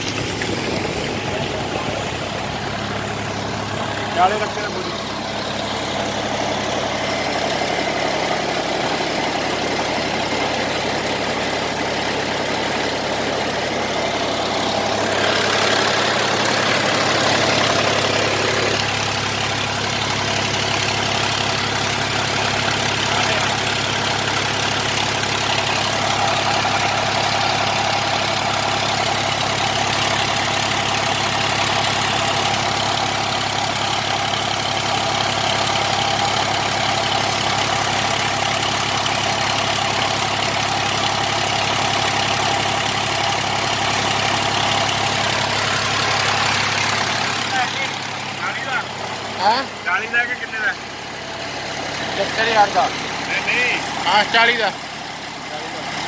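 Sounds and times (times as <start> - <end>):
generator engine hum: 0.0 - 56.0.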